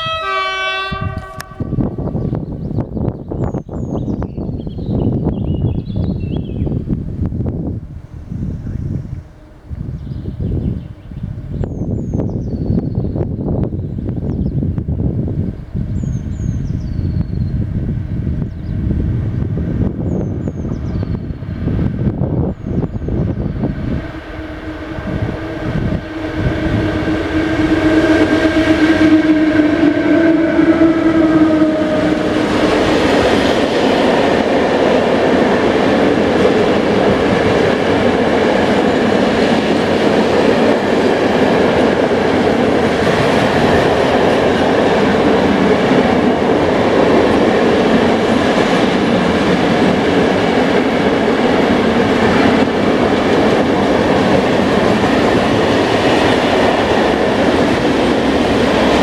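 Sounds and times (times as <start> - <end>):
train droning tone: 0.0 - 59.0
train wheels rumbling and clattering: 0.9 - 59.0.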